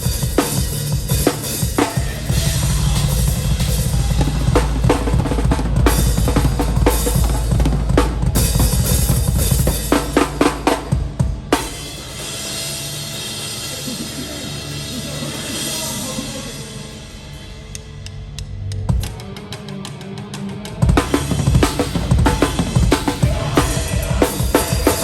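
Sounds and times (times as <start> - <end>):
rapid kick drum: 0.0 - 11.6, 20.8 - 25.0
cymbals: 0.0 - 19.2, 21.0 - 25.0.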